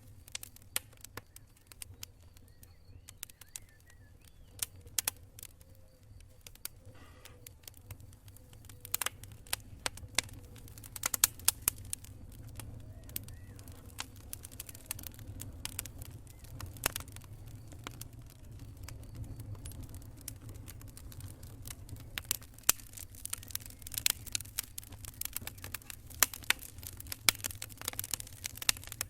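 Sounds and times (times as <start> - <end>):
campfire crackling and popping: 0.0 - 29.0
steady low rumble: 7.8 - 29.0.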